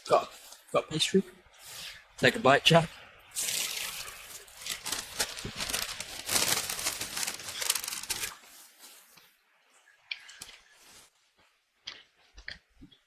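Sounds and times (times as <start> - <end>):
paper bag crinkling: 3.4 - 8.6.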